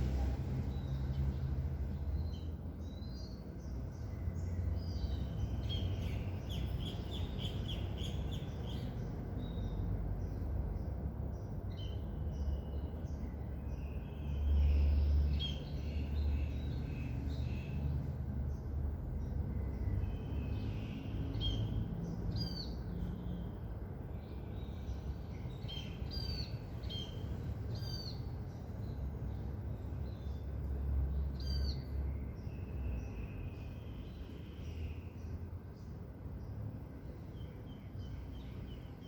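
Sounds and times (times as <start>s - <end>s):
birds chirping and calling: 2.0s - 10.4s, 24.3s - 30.5s.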